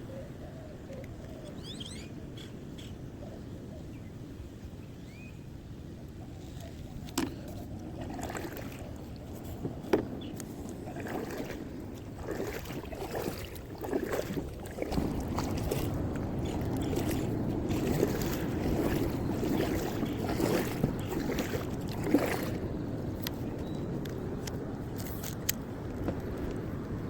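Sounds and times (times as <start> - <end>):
wind on the microphone: 0.0 - 27.0
water sloshing around a kayak: 6.2 - 27.0.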